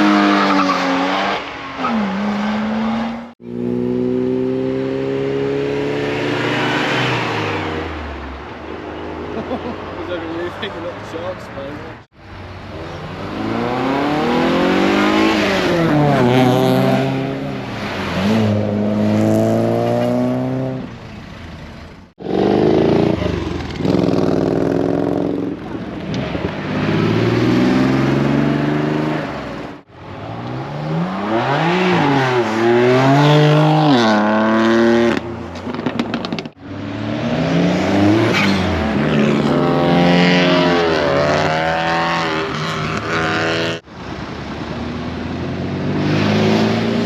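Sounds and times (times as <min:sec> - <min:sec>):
car engines revving: 0:00.0 - 0:47.0.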